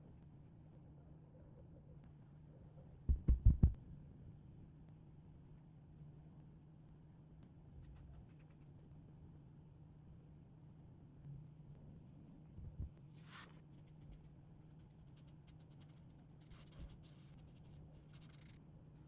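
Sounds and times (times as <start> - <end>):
soft low bumps: 3.1 - 3.8
marker scratching on paper: 13.1 - 18.6.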